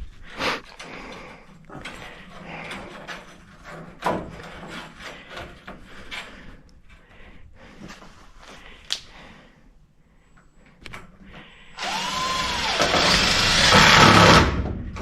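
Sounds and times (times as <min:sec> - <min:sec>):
power drill running: 0:11.8 - 0:14.5.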